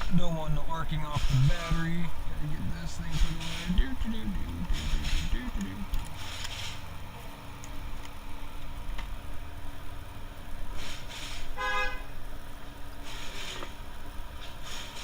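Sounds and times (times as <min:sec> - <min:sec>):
low background rumble: 0:00.0 - 0:15.0
brief hiss: 0:10.8 - 0:11.6, 0:13.0 - 0:13.8
short horn-like toot: 0:11.5 - 0:12.1.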